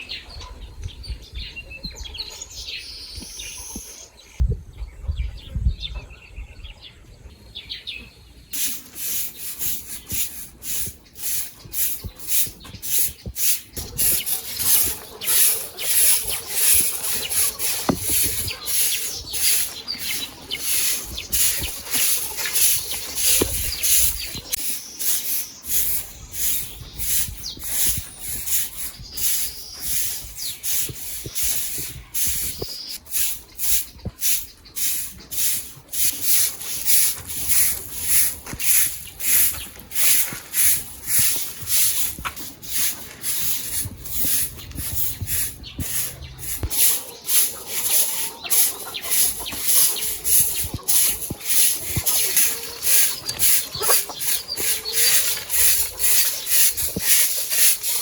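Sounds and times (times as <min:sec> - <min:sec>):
birds chirping: 0:00.0 - 0:58.0
rhythmic scraping strokes: 0:08.6 - 0:58.0.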